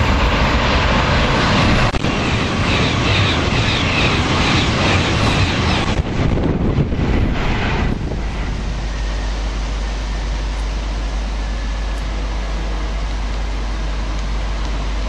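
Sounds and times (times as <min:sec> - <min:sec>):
wind rumble on microphone: 0:00.0 - 0:10.6
train rushing past: 0:00.0 - 0:15.0.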